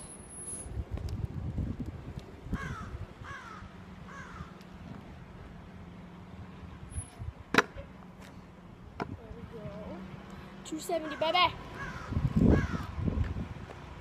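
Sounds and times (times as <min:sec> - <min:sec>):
bird calling: 0:11.0 - 0:12.9.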